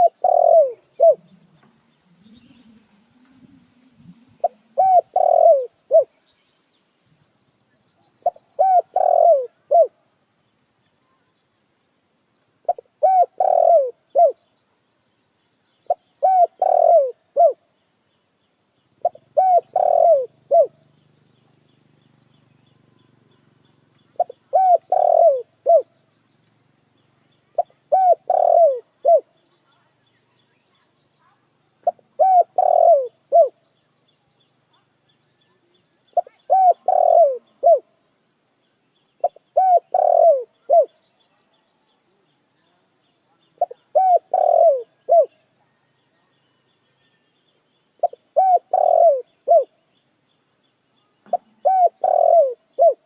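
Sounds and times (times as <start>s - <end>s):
dove cooing: 0.0s - 6.2s, 8.2s - 10.0s, 12.6s - 14.4s, 15.8s - 17.6s, 19.0s - 20.8s, 24.1s - 26.0s, 27.5s - 29.4s, 31.8s - 33.6s, 36.2s - 38.0s, 39.2s - 41.0s, 43.6s - 45.4s, 48.0s - 49.8s, 51.3s - 53.0s.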